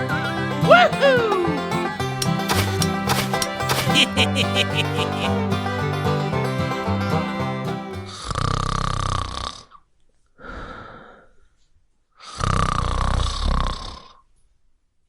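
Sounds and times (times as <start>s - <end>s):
banjo tune: 0.0s - 8.2s.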